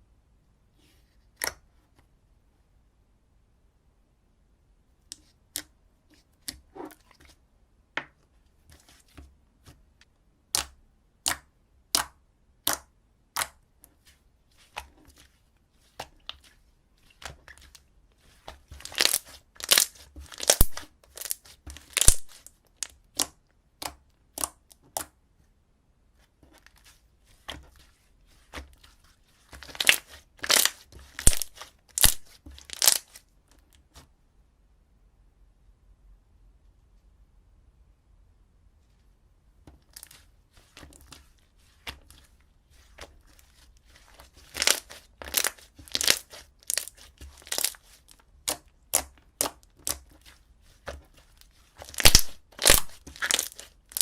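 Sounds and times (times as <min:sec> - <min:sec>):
slime popping and crackling: 0:18.8 - 0:24.6, 0:29.5 - 0:33.2, 0:44.2 - 0:50.1, 0:51.8 - 0:54.0.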